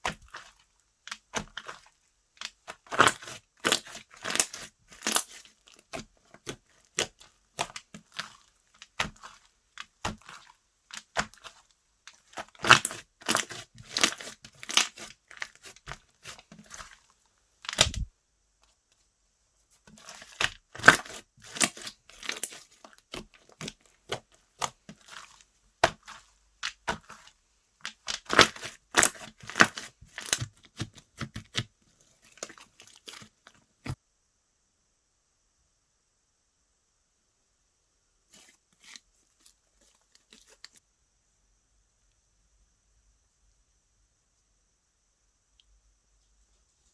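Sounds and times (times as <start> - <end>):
slime crackling and popping: 1.1 - 17.0, 20.0 - 31.6.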